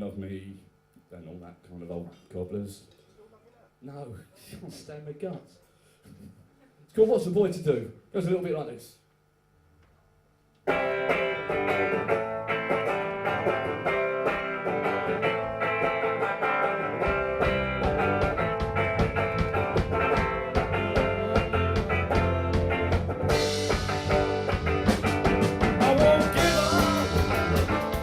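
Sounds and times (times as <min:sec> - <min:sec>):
guitar strummed: 0:10.7 - 0:28.0
low bass notes: 0:16.8 - 0:28.0.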